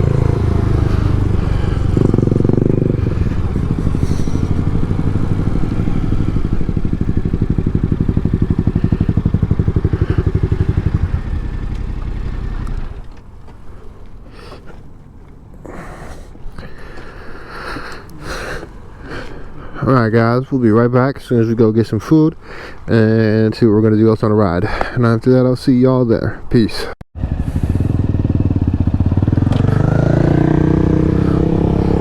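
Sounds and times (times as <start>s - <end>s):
motorcycle engine running: 0.0s - 13.5s, 27.2s - 32.0s.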